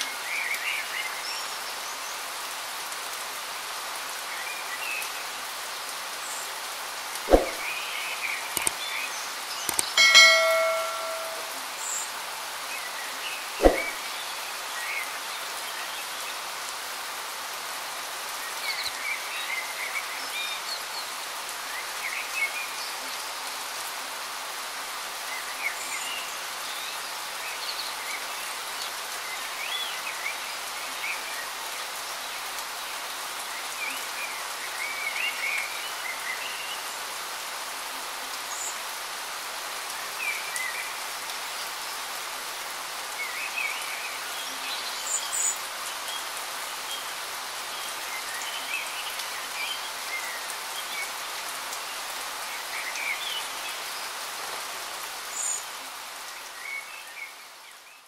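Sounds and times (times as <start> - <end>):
rain falling: 0.0 - 58.0
bird chirps: 9.7 - 11.5, 13.6 - 14.0.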